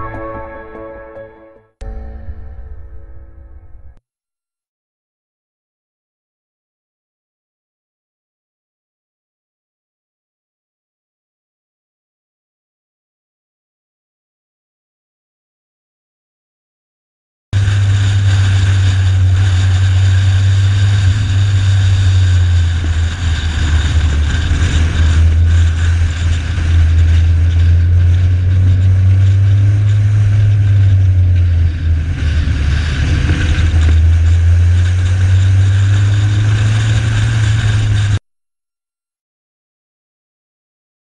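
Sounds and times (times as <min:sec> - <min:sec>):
car engine running hard: 0:17.6 - 0:38.2
wind rumble on camera: 0:17.6 - 0:38.2.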